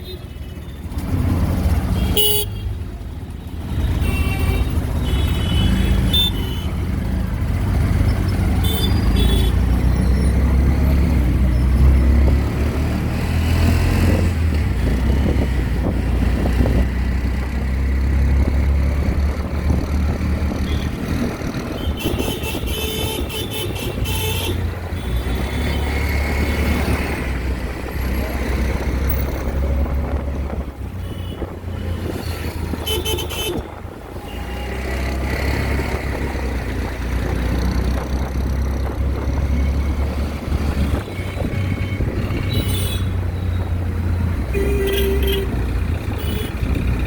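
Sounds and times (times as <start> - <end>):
engine and road rumble: 0.0 - 47.0
vehicle horns honking: 1.9 - 2.8, 3.8 - 6.8, 8.5 - 9.8, 21.8 - 26.0, 32.7 - 35.0, 40.8 - 43.5, 44.4 - 46.7.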